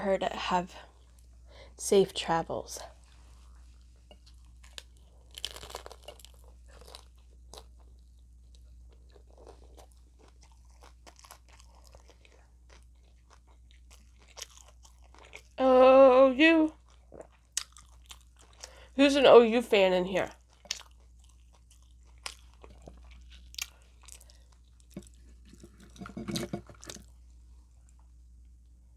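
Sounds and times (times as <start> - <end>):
chewing crunchy taco shell: 2.8 - 15.6, 16.7 - 19.0, 20.3 - 28.1.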